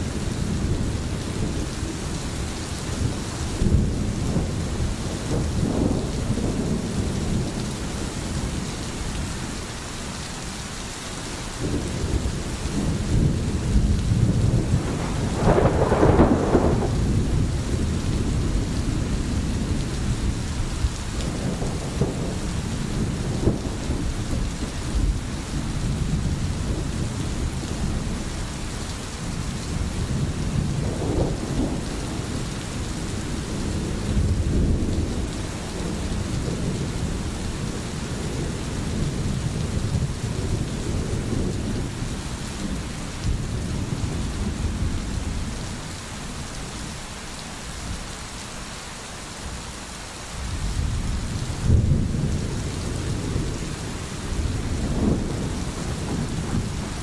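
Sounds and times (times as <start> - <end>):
rain falling: 0.0 - 57.0
low rolling rumbles: 12.1 - 20.4.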